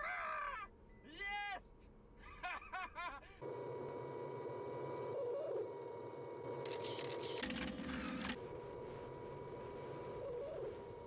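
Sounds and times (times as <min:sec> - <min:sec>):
man laughing and exclaiming: 0:00.0 - 0:03.4.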